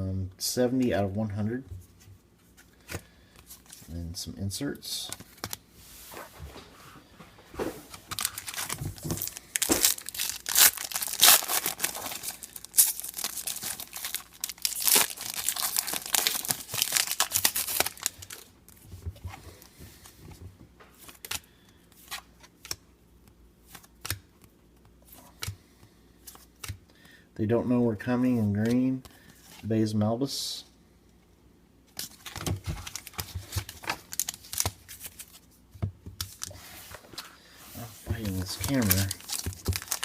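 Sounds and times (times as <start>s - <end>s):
foil wrapper tearing and crinkling: 8.1s - 18.5s, 38.4s - 40.0s.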